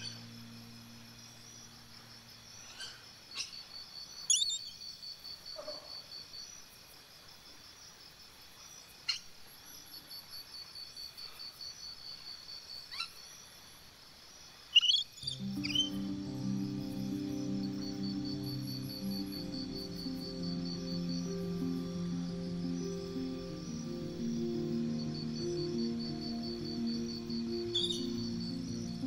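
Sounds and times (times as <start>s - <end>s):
sharp bird calls: 14.8s - 29.0s
high-pitched trill: 15.2s - 29.0s.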